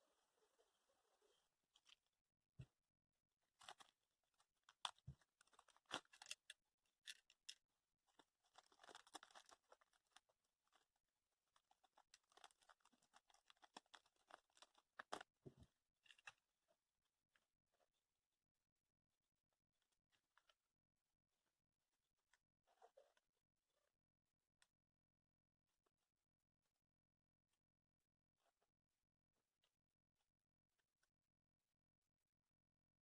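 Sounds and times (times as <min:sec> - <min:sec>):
crinkling rustles: 0:08.1 - 0:10.8, 0:11.6 - 0:15.3.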